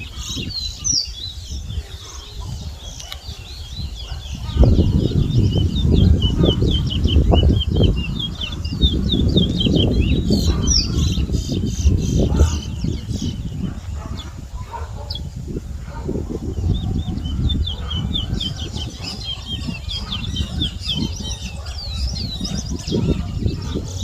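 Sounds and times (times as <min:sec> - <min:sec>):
finch chirping and whistling: 0:00.0 - 0:14.2, 0:16.4 - 0:24.0.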